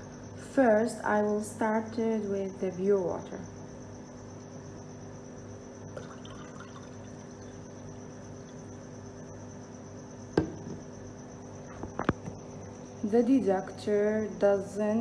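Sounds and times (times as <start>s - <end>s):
steady background hum: 0.0s - 15.0s
water being poured: 6.0s - 7.6s
sharp knock: 10.4s - 10.8s.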